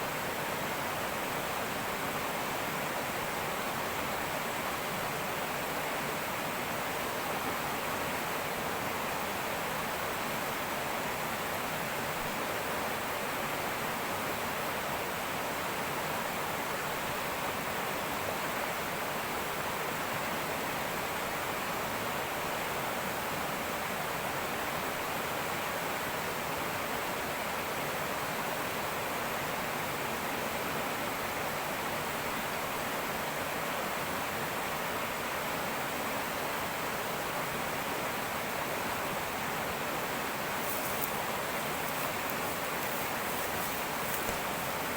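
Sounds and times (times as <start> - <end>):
river rushing over rocks: 0.0 - 44.9.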